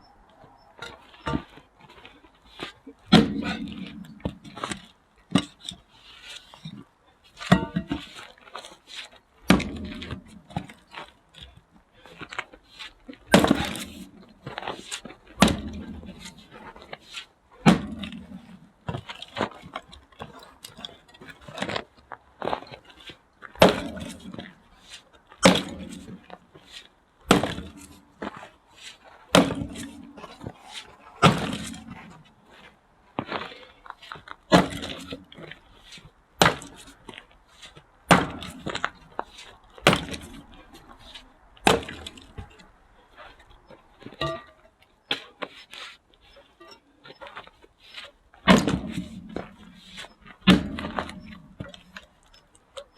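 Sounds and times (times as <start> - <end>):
axe chopping firewood: 3.1 - 5.6, 9.5 - 10.8, 13.3 - 17.0, 17.6 - 21.8, 23.5 - 24.6, 25.4 - 26.4, 27.2 - 28.5, 29.3 - 32.2, 34.1 - 35.6, 36.4 - 37.2, 38.1 - 42.6, 44.0 - 45.5, 48.0 - 52.3.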